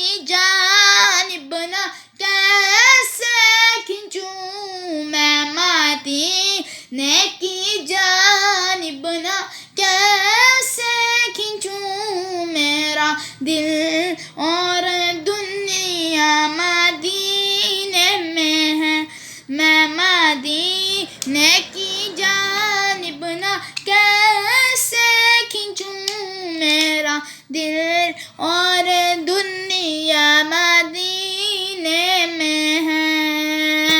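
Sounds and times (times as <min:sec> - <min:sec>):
high solo voice singing: 0:12.1 - 0:25.2.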